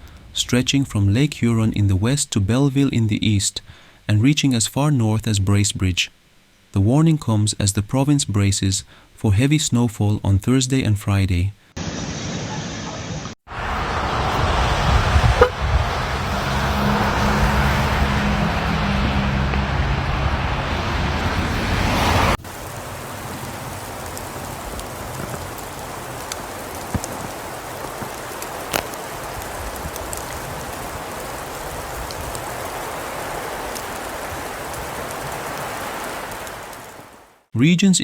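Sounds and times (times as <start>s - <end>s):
traffic noise with engine hum: 13.5s - 36.8s
steady hiss: 22.4s - 37.5s
precipitation ticking on surfaces: 22.5s - 32.4s.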